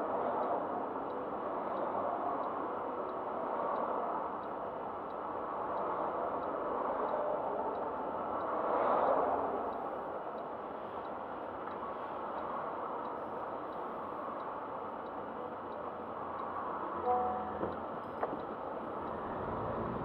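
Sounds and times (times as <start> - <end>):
road traffic: 0.0 - 20.0
vehicle passing close: 19.0 - 20.0.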